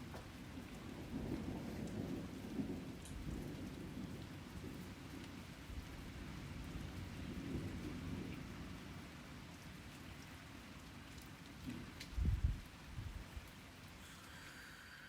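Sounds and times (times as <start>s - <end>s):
steady rain falling: 0.0s - 15.0s
low rolling thunder: 0.8s - 5.0s.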